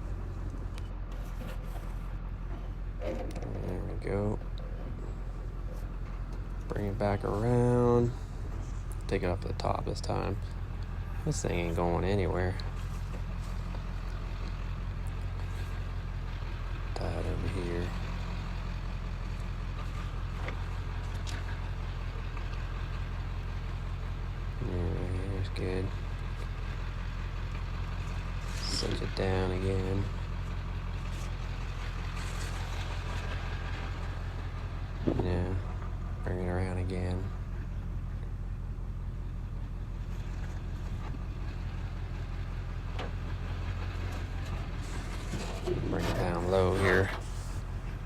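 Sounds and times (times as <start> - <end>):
truck engine idling: 0.0 - 48.0
faint clicks of load tie-down: 12.5 - 24.6.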